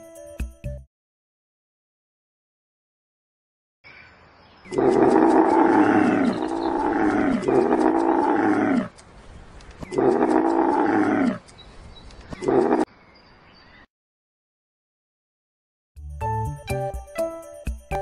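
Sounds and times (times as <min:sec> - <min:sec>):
camels bellowing: 0:04.7 - 0:09.0, 0:09.9 - 0:11.5, 0:12.4 - 0:12.8.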